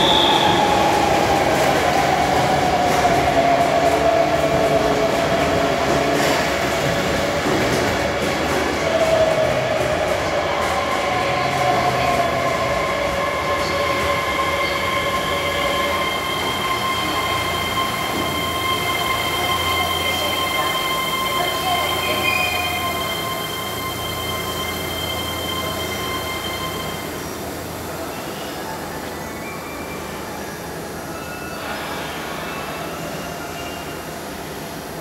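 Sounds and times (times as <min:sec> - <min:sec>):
electric train rumbling: 0:00.0 - 0:35.0.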